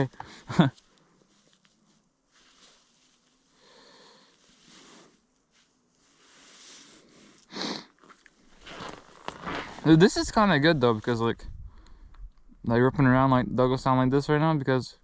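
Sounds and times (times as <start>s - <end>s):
person breathing: 0.2s - 1.2s, 2.4s - 5.3s, 6.0s - 7.9s
person sniffing sharply: 6.2s - 8.0s.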